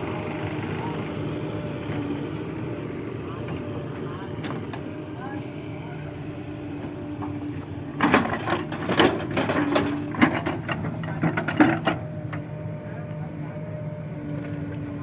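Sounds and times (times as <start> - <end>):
diesel engine running: 0.0 - 15.0
clatter of knocks and bangs: 8.0 - 12.0.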